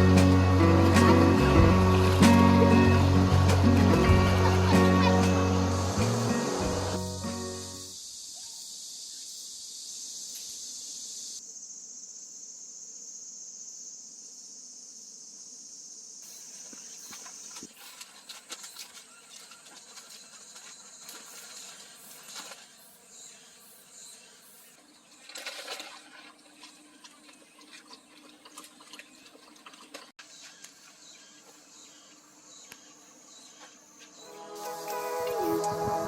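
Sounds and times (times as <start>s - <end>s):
insects shrilling: 0.0s - 19.6s.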